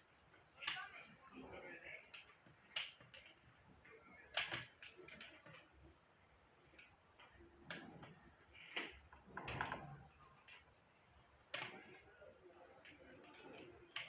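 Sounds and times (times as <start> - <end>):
clicks and knocks of small parts: 4.3 - 5.8.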